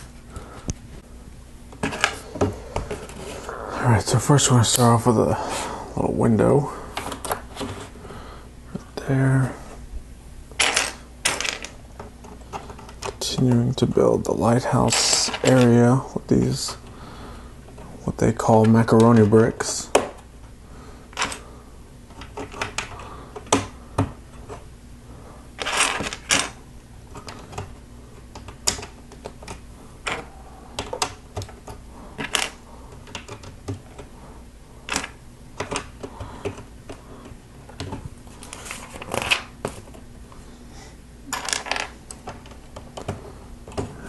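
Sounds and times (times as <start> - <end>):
loose plastic pieces rattling: 25.6 - 34.1.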